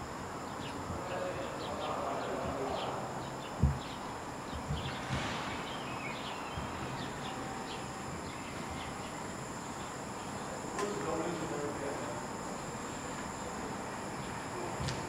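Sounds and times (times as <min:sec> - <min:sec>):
outdoor background noise: 0:00.0 - 0:15.0
small birds chirping: 0:00.3 - 0:15.0
soft low thumps: 0:02.3 - 0:09.5.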